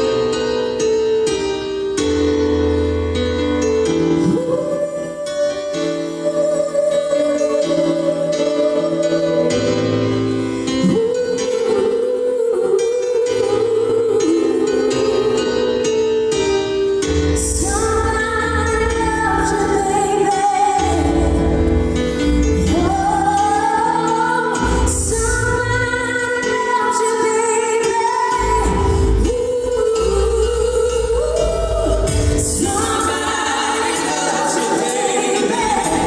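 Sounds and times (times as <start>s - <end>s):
live band music: 30.9s - 36.0s.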